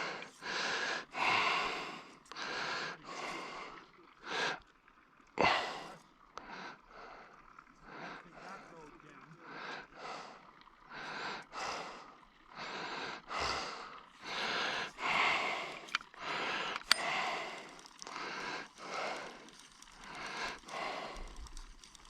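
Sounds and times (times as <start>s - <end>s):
person breathing hard: 0.0s - 4.6s, 9.4s - 21.6s
sharp clicks: 15.7s - 20.7s.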